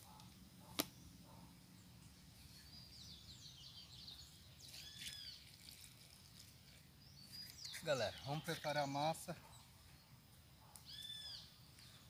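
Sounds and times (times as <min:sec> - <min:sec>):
faint high bird chirps: 0:00.9 - 0:10.2, 0:10.8 - 0:12.0.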